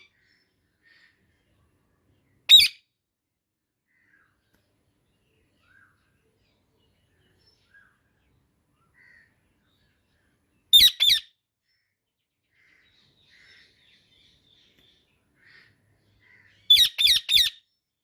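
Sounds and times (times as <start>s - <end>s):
parakeet chirps: 2.5s - 2.8s, 10.7s - 11.3s, 16.7s - 17.6s
parakeet high-pitched calls: 2.5s - 2.8s, 10.7s - 11.4s, 16.3s - 17.6s
parakeet chattering: 16.7s - 17.5s.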